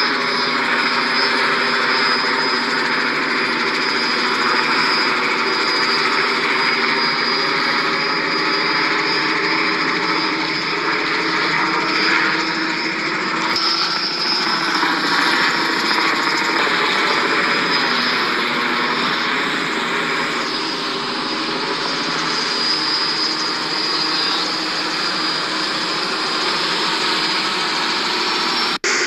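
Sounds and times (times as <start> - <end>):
helicopter rotor drone: 0.0 - 29.0.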